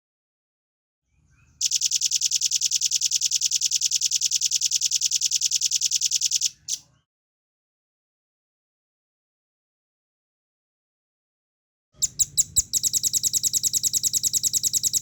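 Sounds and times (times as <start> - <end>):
bird calling in a fast trill: 12.0 - 15.0.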